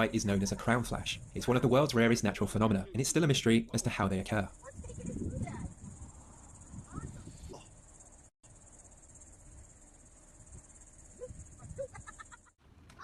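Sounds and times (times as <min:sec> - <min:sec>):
high-pitched insect chorus: 0:04.4 - 0:12.5.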